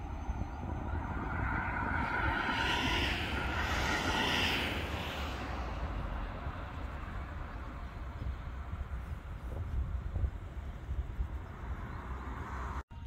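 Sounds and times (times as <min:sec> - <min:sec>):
train wheel and rail hiss: 0:00.0 - 0:11.9.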